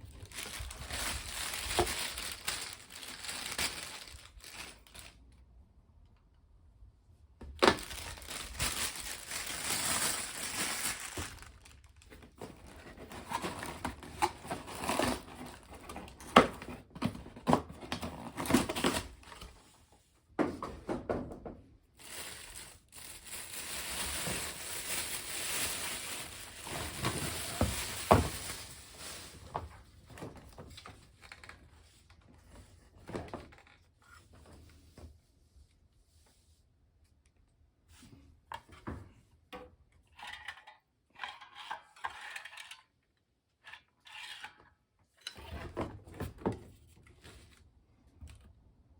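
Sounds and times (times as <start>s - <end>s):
rustling and crinkling: 0.0s - 5.4s, 7.4s - 19.7s, 21.9s - 36.5s.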